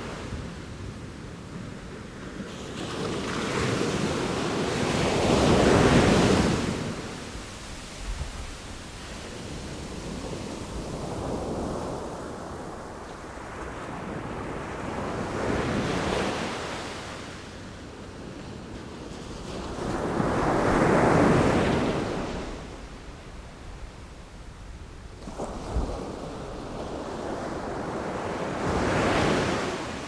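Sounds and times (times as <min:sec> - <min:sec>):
wind blowing on microphone: 0:00.0 - 0:16.6
sea waves breaking ashore: 0:02.3 - 0:17.3.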